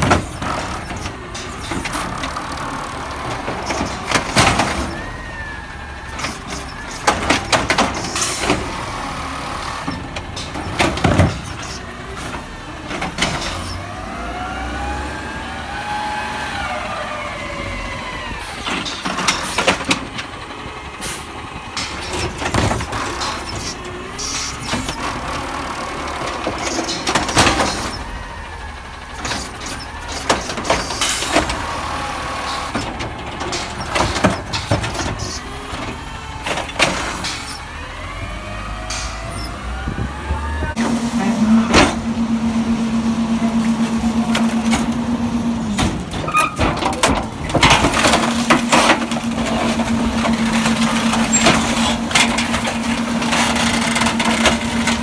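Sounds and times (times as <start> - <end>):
garbage truck engine running: 0.0 - 55.0
metal clanks and knocks: 6.1 - 9.0, 9.6 - 13.8, 21.8 - 25.2, 32.5 - 37.6, 38.9 - 55.0.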